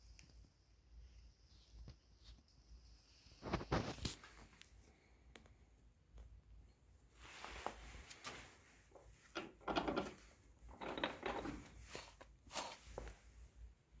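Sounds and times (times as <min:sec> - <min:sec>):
objects scraping and knocking: 0:07.3 - 0:13.4.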